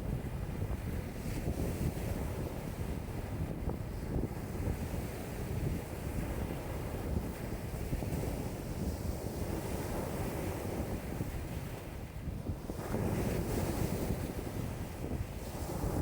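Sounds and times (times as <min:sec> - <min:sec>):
wind buffeting microphone: 0:00.0 - 0:16.0
lake waves washing in: 0:12.6 - 0:16.0.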